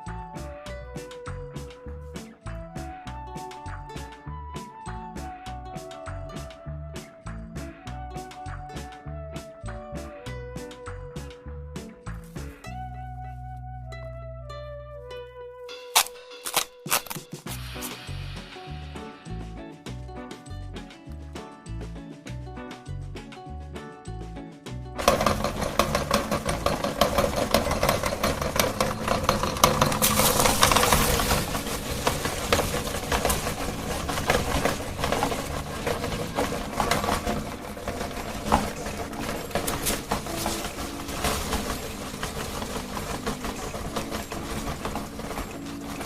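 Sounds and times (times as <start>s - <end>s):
meat grinder crunching cones: 16.0s - 18.1s, 25.0s - 46.0s.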